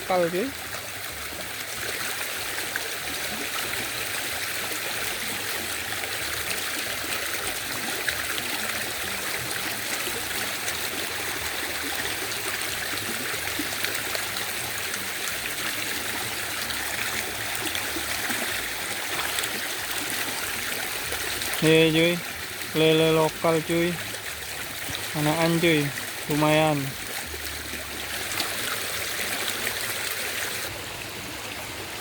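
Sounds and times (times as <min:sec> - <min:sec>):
river water flowing: 0:00.0 - 0:32.0.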